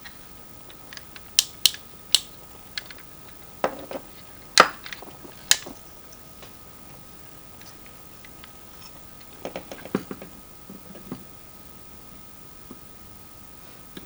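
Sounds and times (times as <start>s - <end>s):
plastic toy parts clicking: 0.0s - 5.8s.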